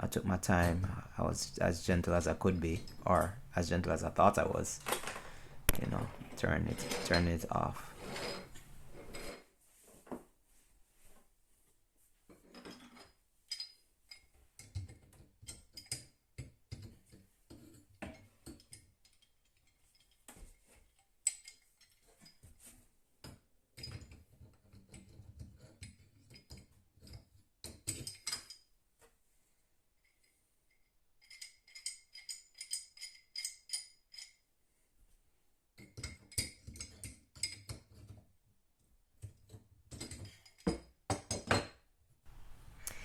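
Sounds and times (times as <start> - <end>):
wrench clinking on metal valve: 31.2 - 34.4.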